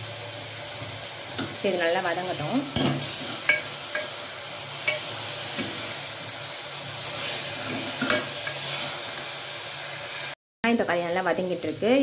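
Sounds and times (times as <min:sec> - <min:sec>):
food sizzling in oil: 0:00.0 - 0:12.0
steel spoon scraping pot: 0:02.8 - 0:04.2.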